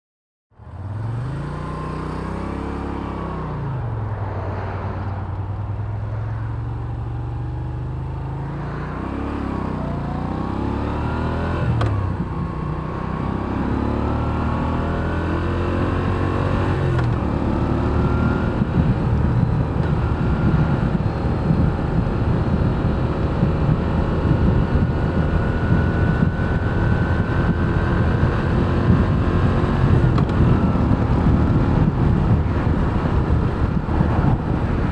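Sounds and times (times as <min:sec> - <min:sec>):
motorcycle accelerating: 0:00.6 - 0:34.9
motorcycle throttle blips: 0:24.9 - 0:34.4.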